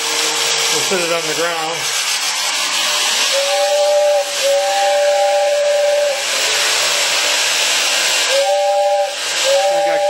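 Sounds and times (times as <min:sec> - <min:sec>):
steady steam hiss: 0:00.0 - 0:10.0
two-note train whistle: 0:03.3 - 0:06.3, 0:08.2 - 0:10.0.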